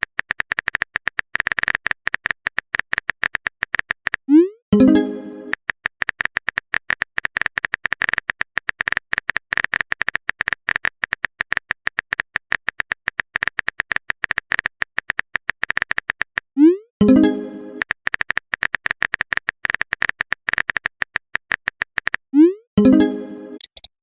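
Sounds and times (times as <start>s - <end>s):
phone keyboard typing clicks: 0.0s - 4.9s, 5.5s - 16.5s, 17.8s - 22.3s, 23.6s - 23.9s
message sent pop and chime: 4.8s - 5.6s, 17.0s - 17.8s, 22.8s - 23.7s.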